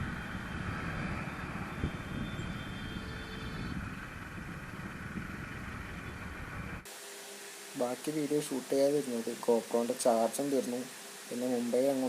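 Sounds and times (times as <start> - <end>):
motorcycle engine: 0.0 - 6.9
wind rumble on microphone: 0.0 - 6.9
road noise: 0.0 - 12.0.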